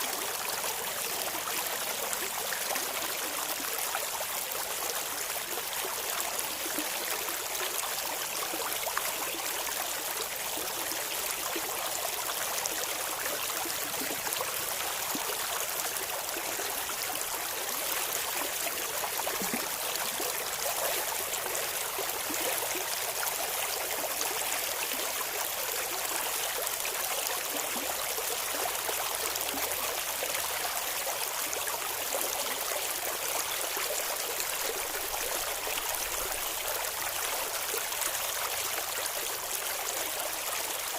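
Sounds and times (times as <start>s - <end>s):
stream water babbling over rocks: 0.0s - 40.9s.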